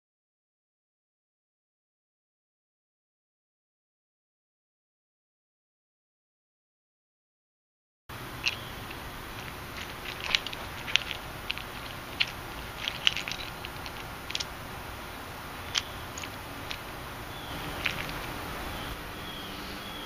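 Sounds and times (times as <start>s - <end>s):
steady hiss: 8.1s - 20.0s.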